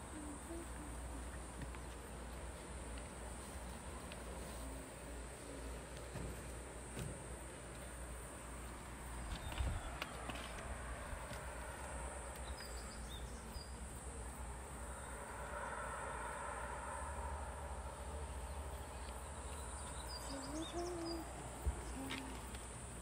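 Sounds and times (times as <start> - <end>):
bird low hooting coos: 0.0 - 1.8, 10.9 - 22.9.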